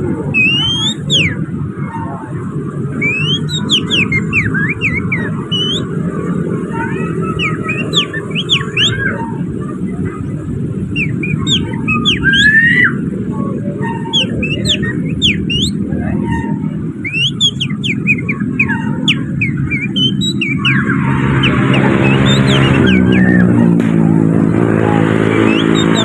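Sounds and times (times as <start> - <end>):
person whistling bird song: 0.4 - 1.4, 3.0 - 6.0, 7.3 - 9.2, 11.0 - 13.0, 14.0 - 15.8, 17.0 - 23.6, 25.4 - 26.0
low rumble: 18.1 - 26.0.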